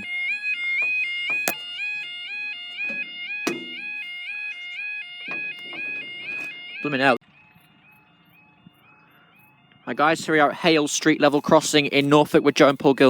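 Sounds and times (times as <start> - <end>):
level crossing alarm warbling: 0.0 - 11.0
sharp knocks: 0.8 - 1.7, 2.8 - 4.0.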